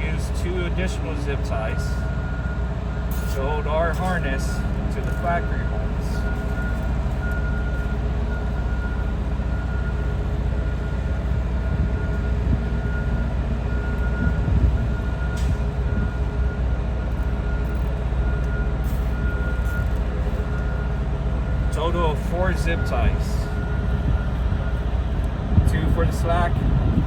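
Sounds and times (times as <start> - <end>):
engine idling low rumble: 0.0 - 27.0.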